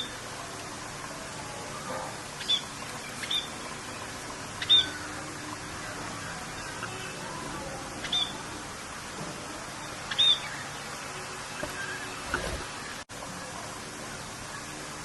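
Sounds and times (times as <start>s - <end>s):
rain hiss: 0.0s - 15.0s
birds chirping: 1.6s - 13.0s.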